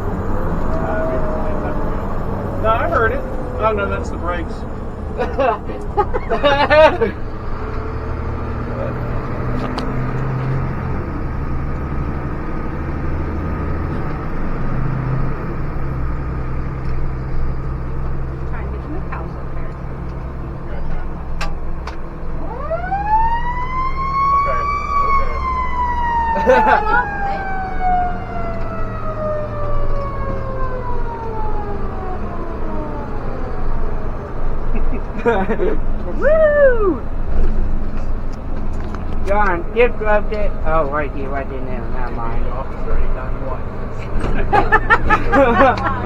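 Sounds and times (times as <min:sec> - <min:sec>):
mechanical siren winding down: 0:00.0 - 0:05.2, 0:22.3 - 0:34.6, 0:36.2 - 0:37.2
road and cab noise: 0:00.0 - 0:46.0
truck engine humming: 0:00.0 - 0:46.0.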